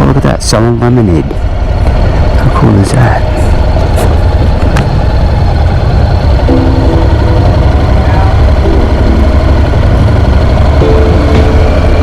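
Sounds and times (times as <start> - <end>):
low wind rumble: 0.0 - 12.0
motorcycle engine running: 3.4 - 12.0.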